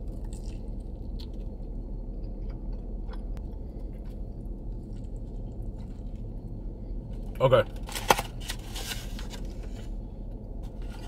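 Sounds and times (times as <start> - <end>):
man chewing: 0.0 - 7.3
low hum in car cabin: 0.0 - 11.0.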